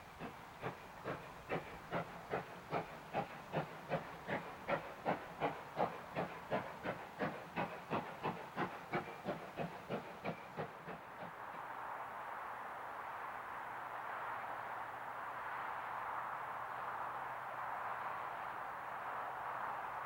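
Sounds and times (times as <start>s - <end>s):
steam locomotive chuffing: 0.0s - 11.8s.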